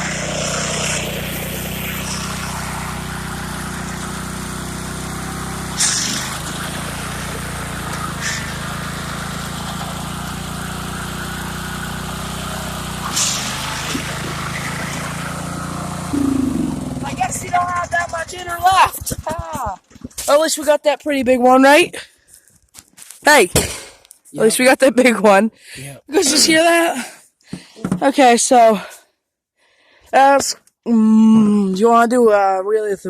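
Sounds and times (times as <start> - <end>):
lawn tractor engine running: 0.0 - 20.0.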